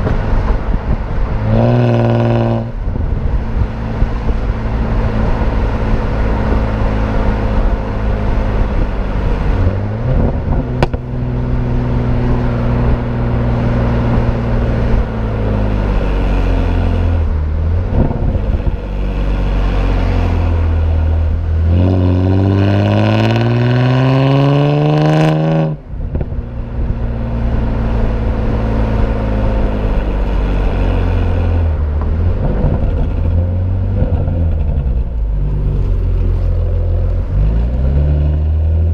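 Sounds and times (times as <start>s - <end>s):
car engine revving and upshifting: 0.0s - 38.9s
car exhaust note: 0.0s - 38.9s.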